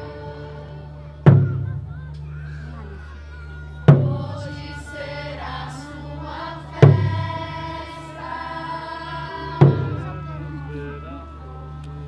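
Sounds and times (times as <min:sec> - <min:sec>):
group of voices singing: 0:00.0 - 0:02.0, 0:03.8 - 0:11.3
deep drum beats: 0:01.2 - 0:02.3, 0:03.9 - 0:04.7, 0:06.8 - 0:07.7, 0:09.5 - 0:10.4.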